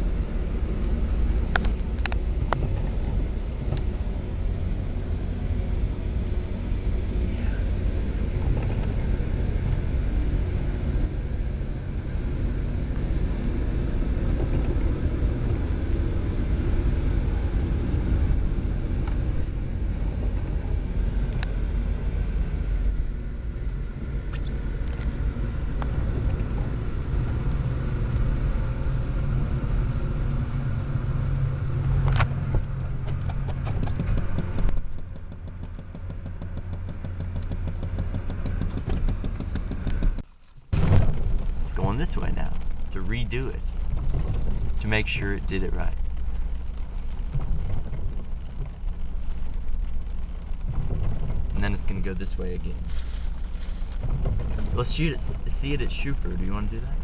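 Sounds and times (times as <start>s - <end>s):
rail grinder train rumbling: 0.0s - 57.0s
sharp clicks and ticks: 33.0s - 40.3s.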